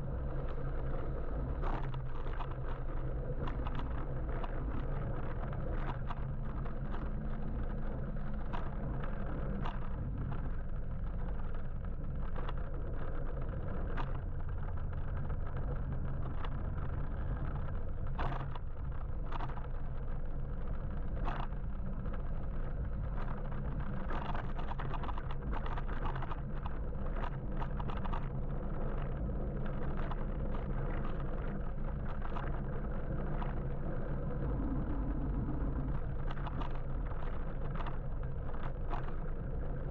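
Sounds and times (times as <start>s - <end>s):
road and traffic rumble: 0.0s - 39.9s.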